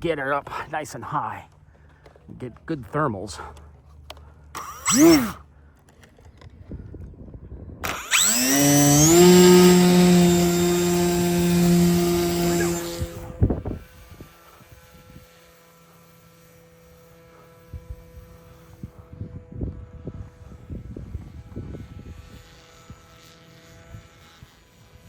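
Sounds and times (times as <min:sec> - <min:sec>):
electric motor whining: 0:04.6 - 0:05.4, 0:07.8 - 0:25.0.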